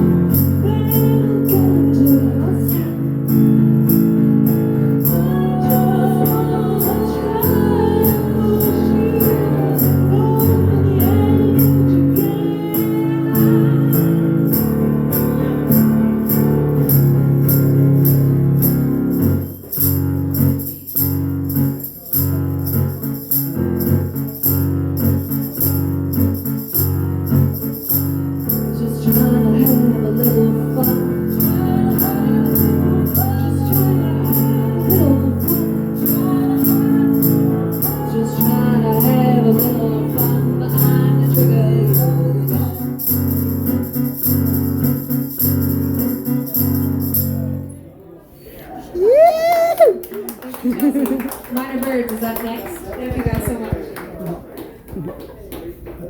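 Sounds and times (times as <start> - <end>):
guitar chords: 0.0 - 19.2
jingling beat: 0.0 - 47.6.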